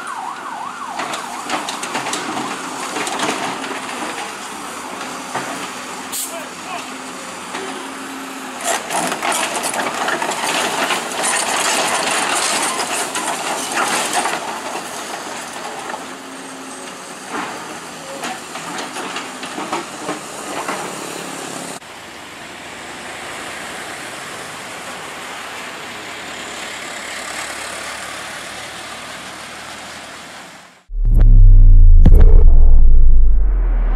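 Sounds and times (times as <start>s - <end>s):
heavy equipment mechanical drone: 30.9s - 33.9s.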